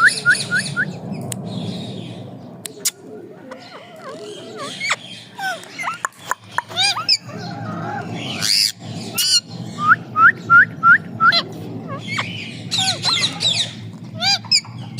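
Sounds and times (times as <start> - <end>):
parrot screeching and chirping: 3.5 - 9.8, 11.3 - 14.9.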